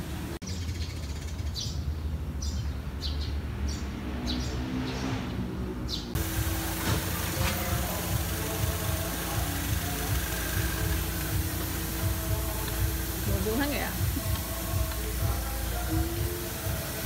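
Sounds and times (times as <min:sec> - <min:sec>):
bird chirping: 0:00.4 - 0:05.1
even hiss: 0:06.2 - 0:17.0.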